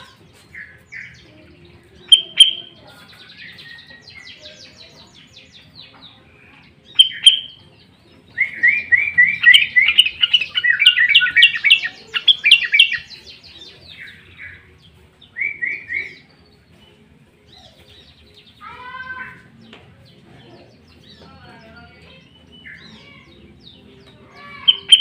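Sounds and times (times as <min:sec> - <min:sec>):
bird calling: 0:02.1 - 0:02.8, 0:06.9 - 0:07.6, 0:08.3 - 0:16.3, 0:24.4 - 0:25.0.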